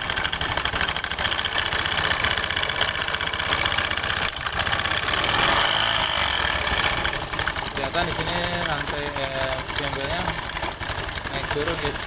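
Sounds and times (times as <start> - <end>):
fast transmission rattle: 0.0 - 12.0
scooter engine running: 0.0 - 12.0.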